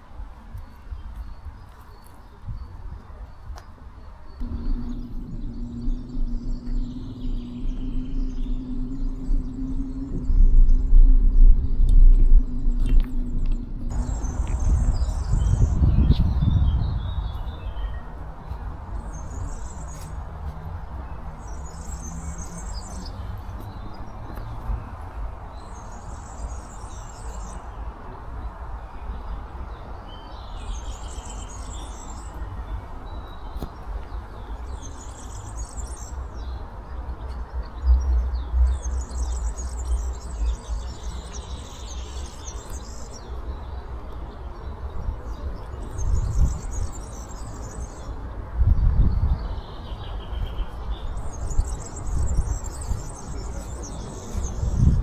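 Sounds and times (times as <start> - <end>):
songbirds singing: 0.0 - 55.0
low outdoor rumble: 4.4 - 26.6.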